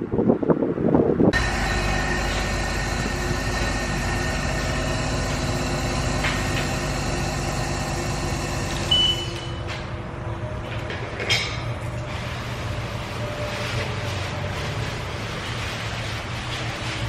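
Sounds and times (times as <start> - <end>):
pressure washer pump running: 1.4 - 9.6.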